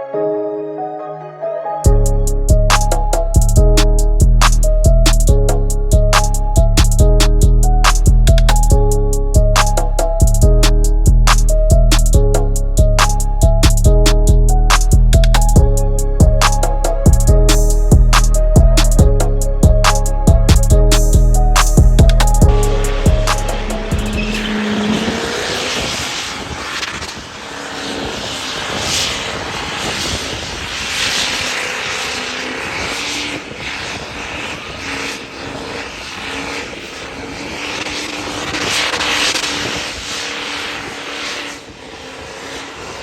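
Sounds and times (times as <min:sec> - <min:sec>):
music: 0:00.0 - 0:24.5
loud engine noise: 0:01.9 - 0:43.0.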